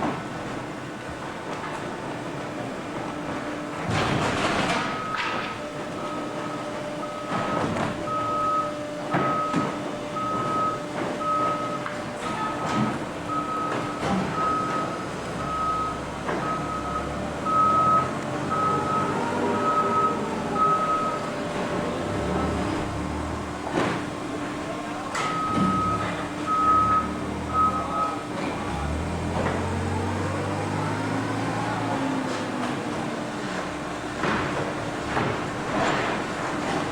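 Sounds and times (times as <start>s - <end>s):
reversing alarm beeping: 4.8s - 23.1s, 25.2s - 29.0s
baling machinery humming: 5.8s - 36.9s.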